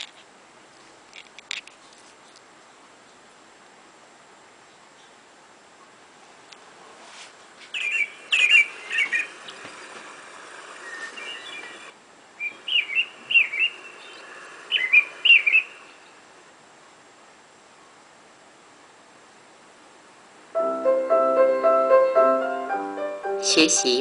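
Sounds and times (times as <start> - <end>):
songbird chirping: 7.6 - 16.3.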